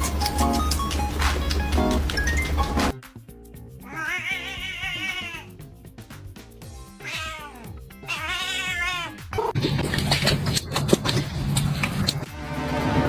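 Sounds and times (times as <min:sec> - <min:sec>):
background music: 0:00.0 - 0:11.2, 0:11.8 - 0:13.0
cat meowing: 0:03.8 - 0:05.5, 0:07.0 - 0:09.6.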